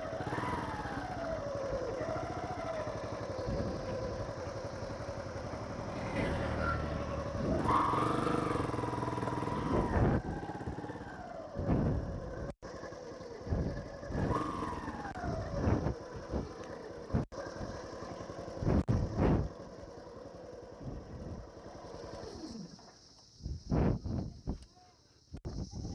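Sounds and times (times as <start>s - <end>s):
motorcycle engine running: 0.0s - 24.3s.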